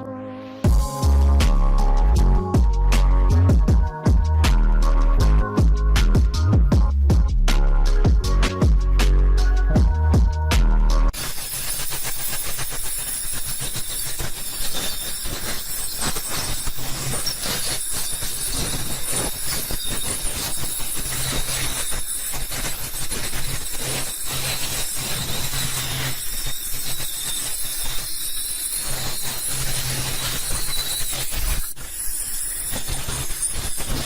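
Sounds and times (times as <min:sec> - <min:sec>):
nail drill running: 0:11.2 - 0:34.0.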